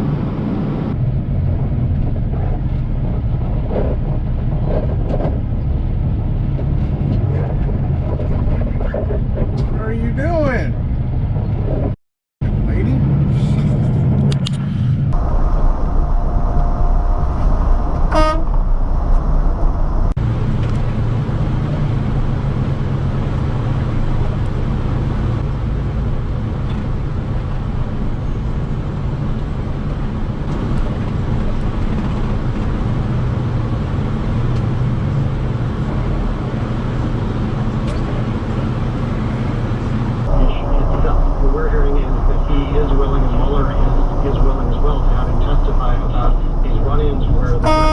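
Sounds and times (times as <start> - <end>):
road and engine noise: 0.0 - 47.9
car horn honking: 15.2 - 20.0, 47.0 - 47.9.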